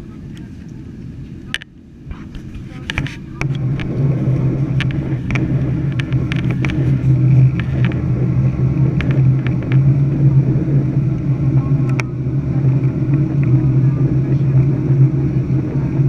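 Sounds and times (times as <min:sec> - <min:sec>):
jet engines droning in cabin: 0:00.0 - 0:16.0
clicks and rattles: 0:02.3 - 0:08.2, 0:08.8 - 0:10.0.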